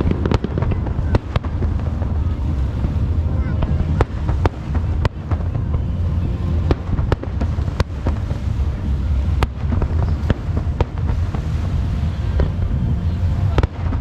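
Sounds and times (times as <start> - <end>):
fireworks bangs: 0.0 - 14.0
low rumble: 0.0 - 14.0.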